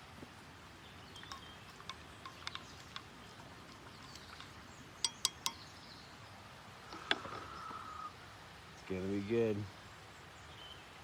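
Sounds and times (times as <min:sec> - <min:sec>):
coffee cup and utensils clinking: 0:01.1 - 0:05.6.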